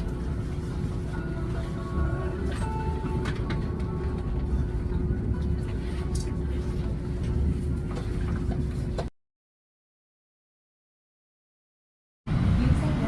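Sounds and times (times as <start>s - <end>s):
subway train rumbling: 0.0s - 9.1s, 12.3s - 13.0s.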